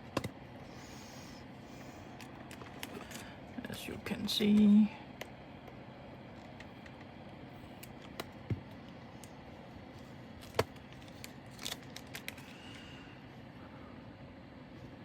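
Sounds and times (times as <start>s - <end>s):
plastic bags and containers clicking: 10.4s - 12.5s.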